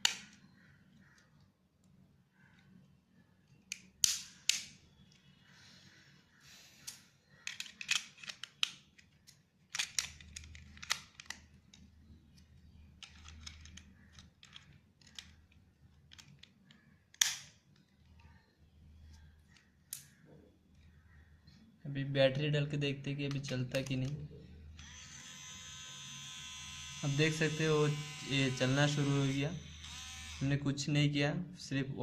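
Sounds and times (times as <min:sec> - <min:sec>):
clicks of plastic parts handled: 0:06.8 - 0:11.9, 0:13.0 - 0:17.9
plastic snap: 0:17.1 - 0:17.6.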